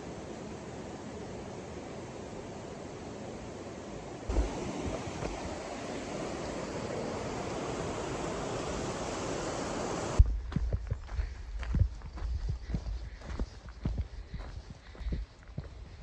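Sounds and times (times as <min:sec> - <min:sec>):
river water rushing: 0:00.0 - 0:10.2.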